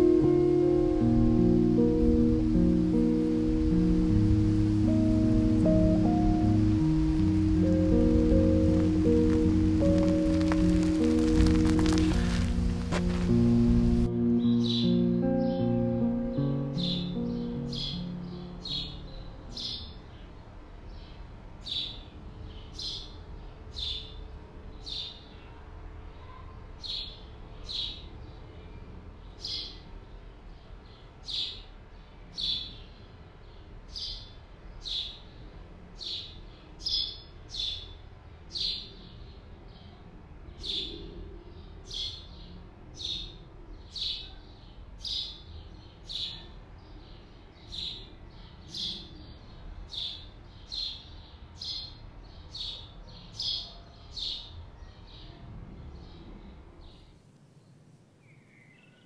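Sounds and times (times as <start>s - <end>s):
steady low rumble: 0.0s - 19.5s
bird chirping: 0.0s - 25.6s, 30.5s - 57.2s.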